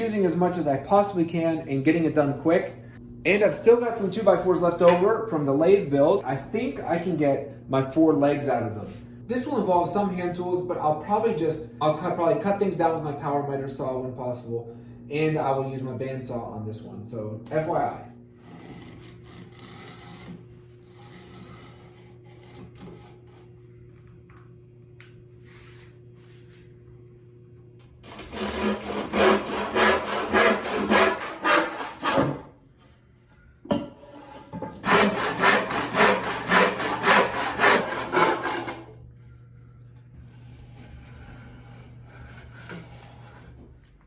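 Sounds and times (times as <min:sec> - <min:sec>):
handsaw cutting wood: 0:18.4 - 0:23.5, 0:28.0 - 0:32.5, 0:34.8 - 0:38.9, 0:40.4 - 0:43.6.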